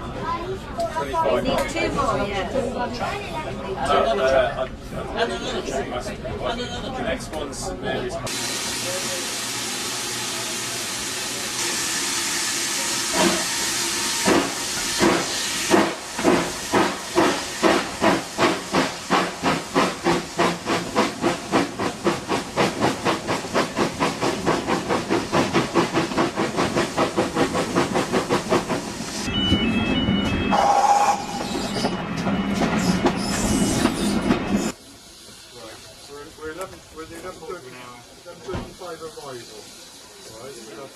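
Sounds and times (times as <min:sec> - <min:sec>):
low rumble of train running: 0:01.6 - 0:40.9
steam locomotive hissing: 0:08.2 - 0:29.3, 0:30.5 - 0:40.9.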